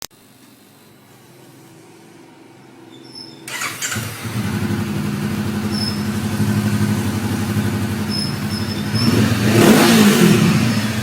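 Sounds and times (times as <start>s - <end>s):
motorcycle engine idling: 3.5s - 11.0s
motorcycle starter cranking: 3.5s - 11.0s.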